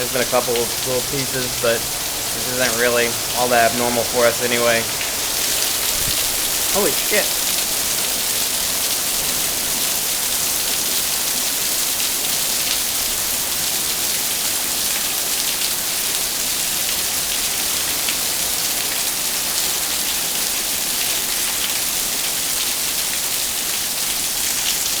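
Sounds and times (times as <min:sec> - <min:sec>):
rain hissing: 0:00.0 - 0:14.0
raindrops ticking on surfaces: 0:00.0 - 0:25.0.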